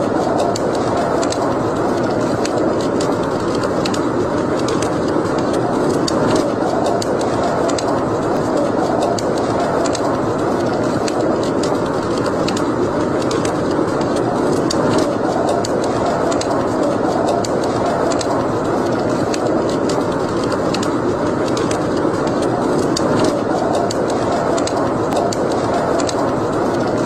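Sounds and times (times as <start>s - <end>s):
wood fire crackling: 0.0s - 27.0s.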